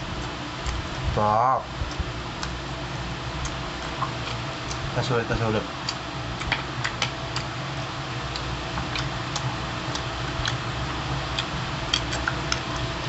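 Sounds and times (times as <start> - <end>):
steady low hum: 0.0 - 13.0
chewing: 8.3 - 10.6, 11.3 - 12.9.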